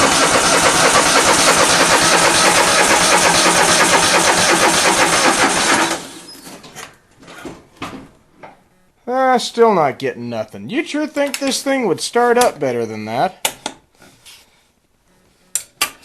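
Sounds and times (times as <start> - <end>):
electric starter cranking engine: 0.0 - 6.4.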